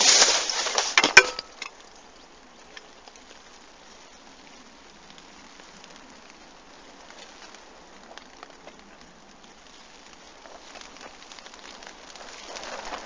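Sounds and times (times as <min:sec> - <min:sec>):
rustling handling noise: 0:00.0 - 0:01.9
rain hissing: 0:00.0 - 0:13.0
raindrops ticking: 0:00.0 - 0:13.0.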